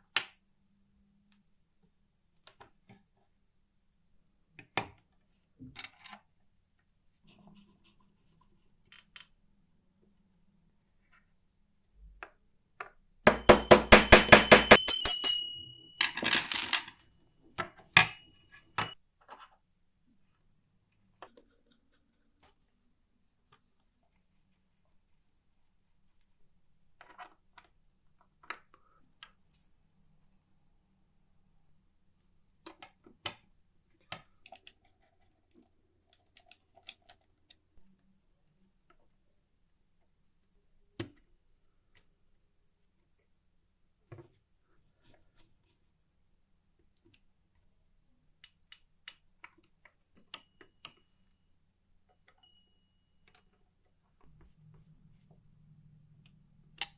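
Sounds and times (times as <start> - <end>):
typewriter bell ring: 13.3 - 16.8, 18.0 - 19.0.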